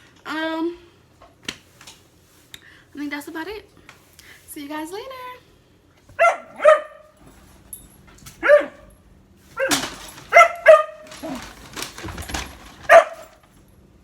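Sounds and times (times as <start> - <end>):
dog barking in high yaps: 6.2 - 7.2, 8.4 - 8.9, 9.6 - 11.4, 12.8 - 13.4.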